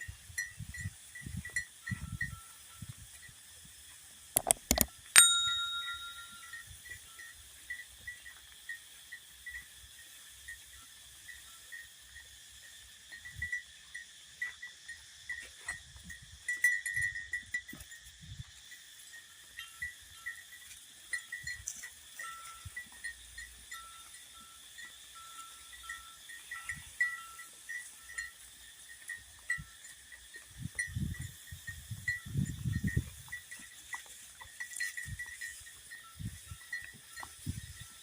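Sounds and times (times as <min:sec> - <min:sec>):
sharp clicks: 0:04.4 - 0:04.9
metallic ringing strike: 0:05.2 - 0:06.4.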